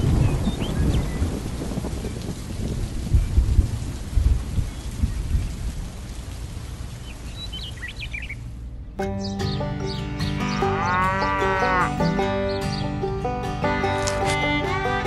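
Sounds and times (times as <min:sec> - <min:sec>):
low rolls of thunder: 0:00.0 - 0:06.1
steady rain: 0:00.0 - 0:08.9
music: 0:09.0 - 0:15.0.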